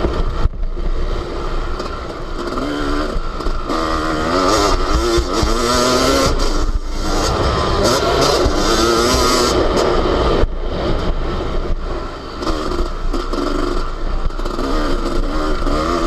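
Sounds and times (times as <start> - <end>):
motocross engine revving: 1.1 - 16.0
wind rumbling on microphone: 6.2 - 14.5.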